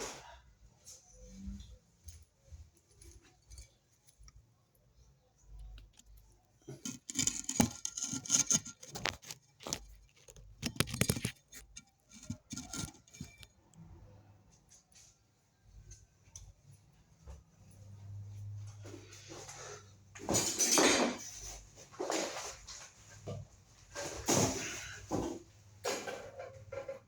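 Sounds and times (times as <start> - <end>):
fan parts clicking and clattering: 2.2 - 4.5, 5.5 - 13.8, 20.1 - 27.0
parts rattling: 5.4 - 13.6.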